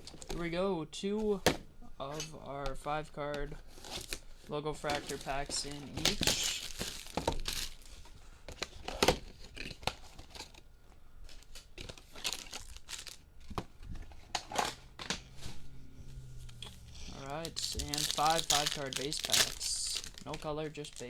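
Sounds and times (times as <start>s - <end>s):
foil wrappers crinkling: 4.9s - 14.9s, 16.7s - 21.0s.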